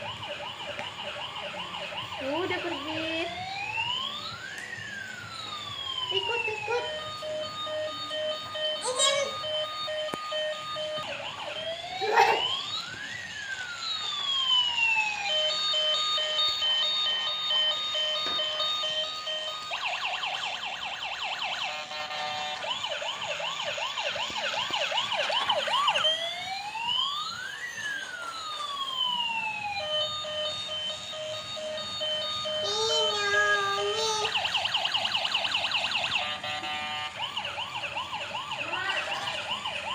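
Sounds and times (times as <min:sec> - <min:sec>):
electronic ambulance siren: 0:00.0 - 0:39.9.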